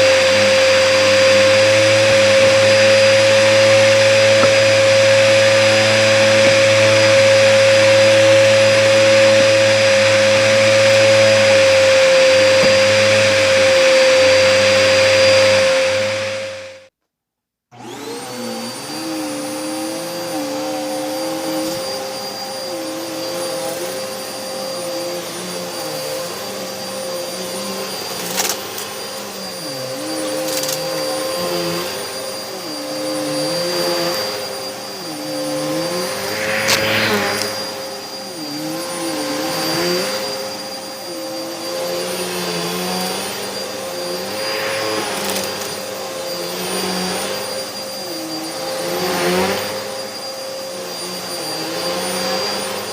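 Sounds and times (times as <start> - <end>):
vacuum cleaner running: 0.0 - 16.9, 17.7 - 52.9.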